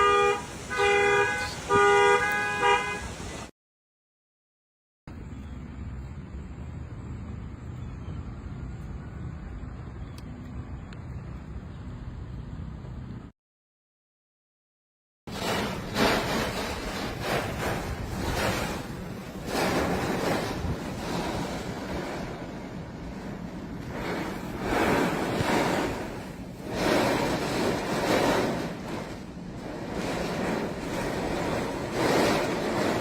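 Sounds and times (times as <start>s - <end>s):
storm wind gusting: 15.3s - 33.0s.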